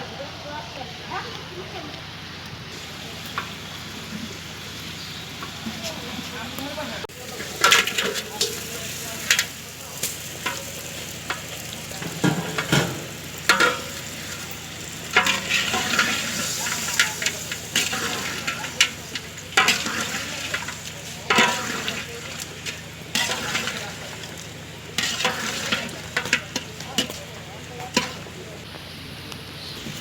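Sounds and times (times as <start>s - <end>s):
meat sizzling in a pan: 2.7s - 6.0s, 7.1s - 27.4s
spatula scraping a pan: 10.4s - 27.2s, 27.8s - 28.4s.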